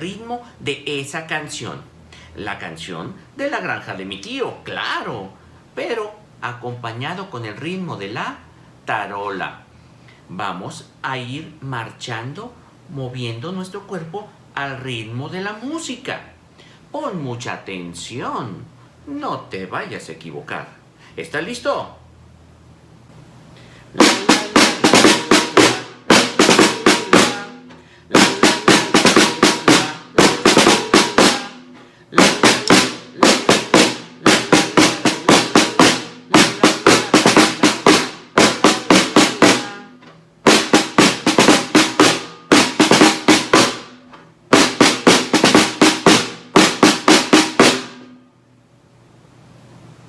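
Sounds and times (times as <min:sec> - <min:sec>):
snare drum rhythm: 0:24.0 - 0:48.2.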